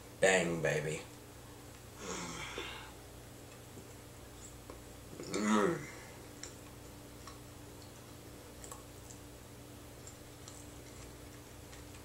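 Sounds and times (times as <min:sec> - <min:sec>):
steady low hum: 0:00.0 - 0:12.0
clicks and smacks of eating: 0:03.4 - 0:05.4, 0:06.2 - 0:12.0.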